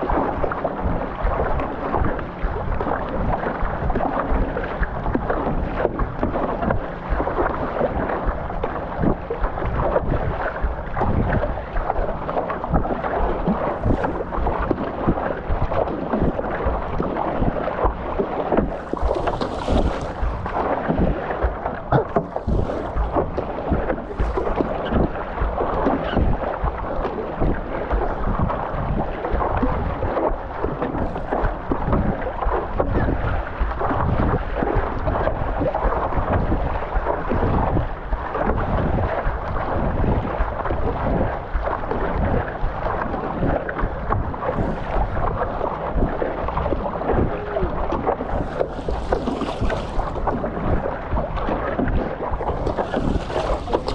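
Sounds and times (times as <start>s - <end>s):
choppy water splashing: 0.0s - 53.9s
wind buffeting microphone: 0.0s - 53.9s
paddleboard knocks: 13.5s - 29.1s, 46.0s - 53.9s.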